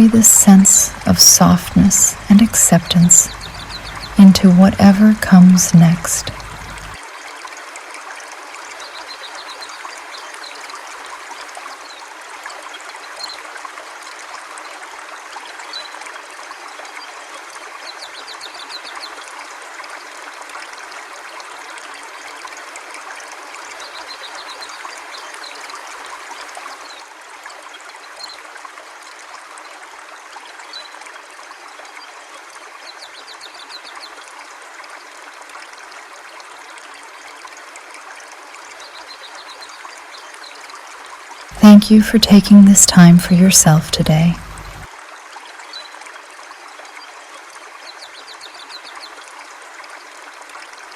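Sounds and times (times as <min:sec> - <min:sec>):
river water flowing: 0:00.0 - 0:17.9, 0:34.2 - 0:50.9.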